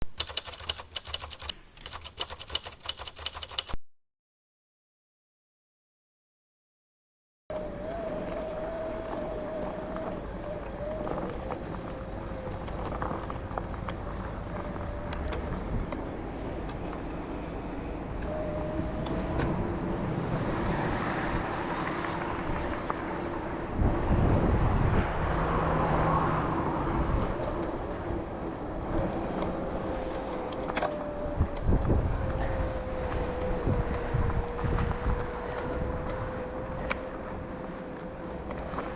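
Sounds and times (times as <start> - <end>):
bike tyres rolling: 7.6 - 17.3, 27.1 - 38.9.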